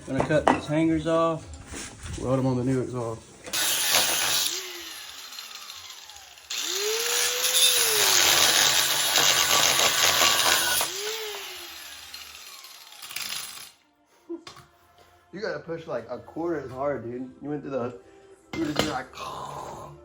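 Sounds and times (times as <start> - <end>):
power tool cutting steel: 3.5 - 13.8.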